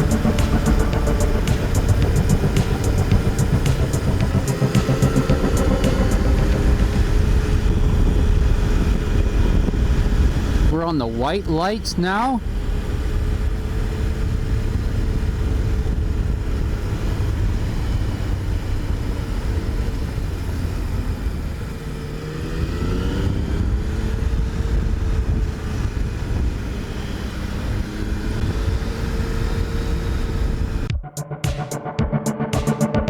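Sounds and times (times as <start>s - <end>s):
motorcycle engine running: 0.0s - 11.8s, 12.4s - 30.9s
wind rumble on microphone: 6.2s - 10.7s, 12.4s - 30.9s.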